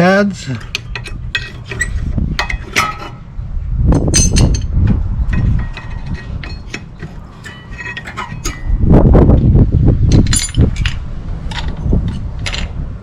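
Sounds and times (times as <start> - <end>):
metal clinks and scraping of brake pads: 0.5 - 3.2, 5.3 - 8.8, 10.1 - 12.7.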